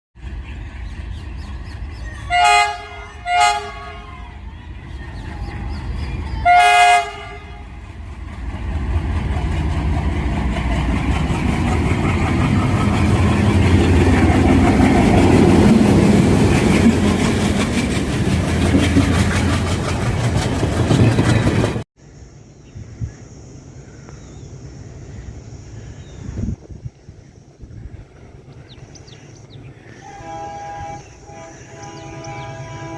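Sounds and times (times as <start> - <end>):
diesel locomotive engine: 0.2 - 32.9
locomotive horn blast: 2.2 - 4.3, 6.4 - 7.8, 29.9 - 32.9
train wheels clacking over rail joints: 7.8 - 21.8.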